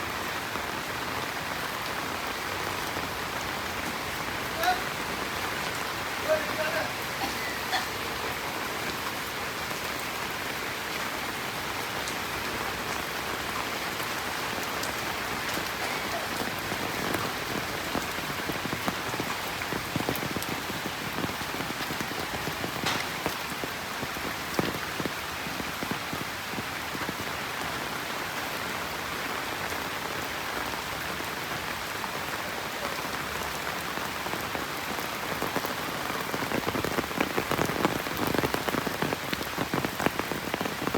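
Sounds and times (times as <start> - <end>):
heavy rain hissing: 0.0 - 40.9
raindrops ticking: 1.2 - 27.8.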